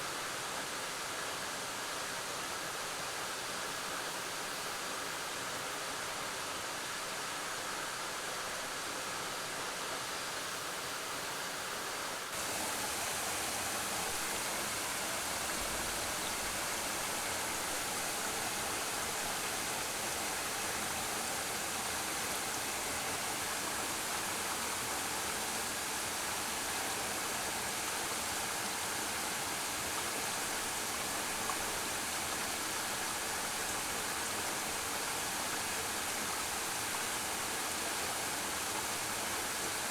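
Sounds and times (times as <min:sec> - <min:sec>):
waterfall rushing: 0:12.4 - 0:37.4.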